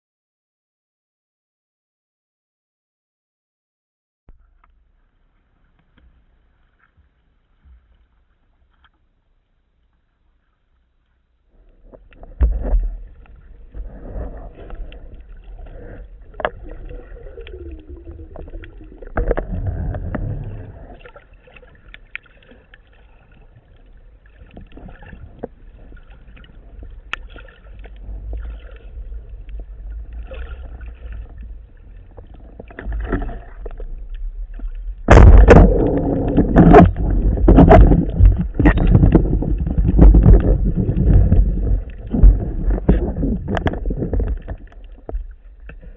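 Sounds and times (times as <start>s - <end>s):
water sloshing against camera housing: 32.2s - 45.9s
clicks and knocks: 35.1s - 41.5s.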